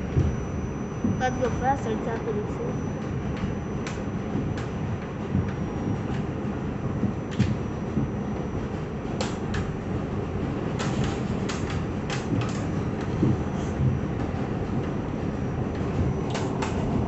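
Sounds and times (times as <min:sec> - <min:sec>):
subway train rumbling: 0:00.0 - 0:00.4, 0:01.0 - 0:17.0
faint high whine: 0:00.0 - 0:09.9.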